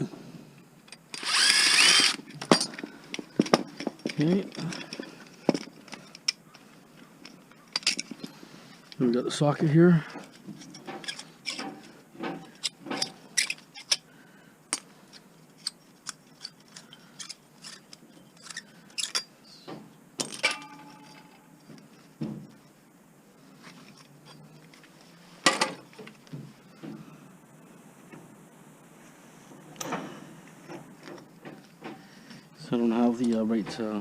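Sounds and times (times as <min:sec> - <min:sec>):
metal tools clicking and clinking: 0:00.9 - 0:06.6, 0:07.2 - 0:08.4, 0:10.3 - 0:14.0, 0:14.7 - 0:19.3, 0:20.2 - 0:22.1
metallic ring: 0:20.3 - 0:21.7.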